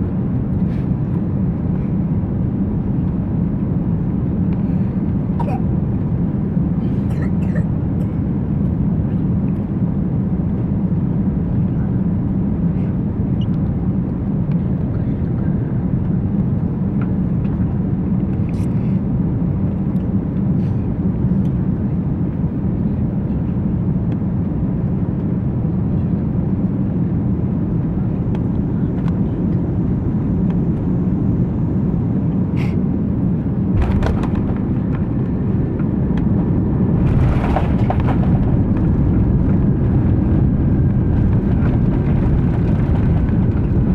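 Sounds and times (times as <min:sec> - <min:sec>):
engine and airflow rumble: 0:00.0 - 0:43.9
rushing noise: 0:33.7 - 0:36.1.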